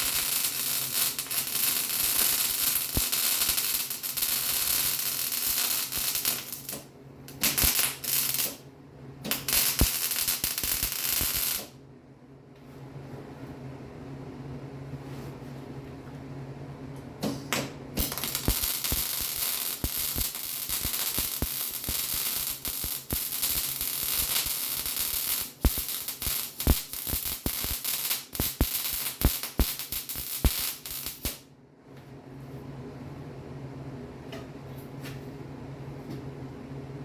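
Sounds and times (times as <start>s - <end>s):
arc welding crackling and popping: 0.0s - 8.6s, 9.3s - 11.7s, 17.5s - 31.4s.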